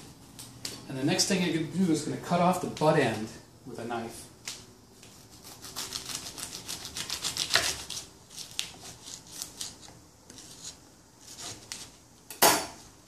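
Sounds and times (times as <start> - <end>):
knife sawing through corn husk: 5.4 - 11.8.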